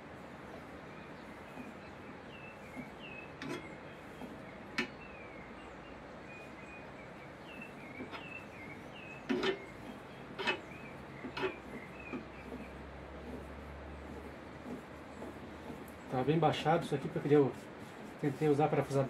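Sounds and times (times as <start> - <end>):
small bird chirping: 0.9 - 12.8.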